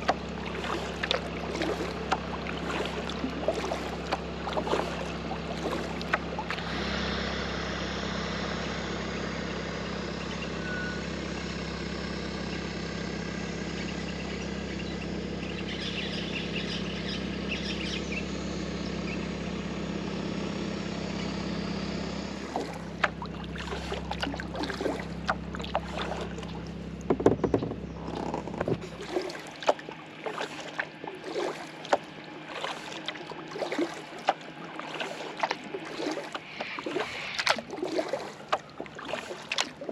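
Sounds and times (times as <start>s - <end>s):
paddle knocks: 0.0s - 6.6s, 22.5s - 36.4s
kayak paddle splashing: 0.0s - 8.1s, 22.3s - 39.9s
low hum: 0.0s - 39.9s.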